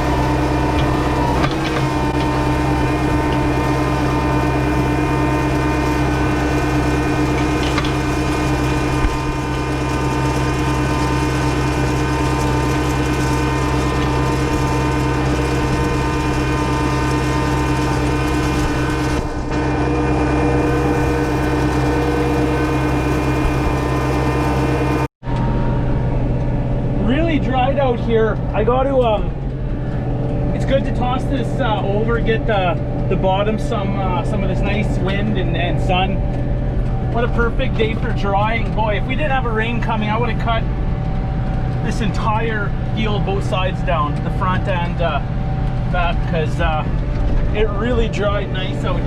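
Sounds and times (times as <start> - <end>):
gear and rattle noise: 0.0 - 49.0
tractor diesel engine running: 0.0 - 49.0.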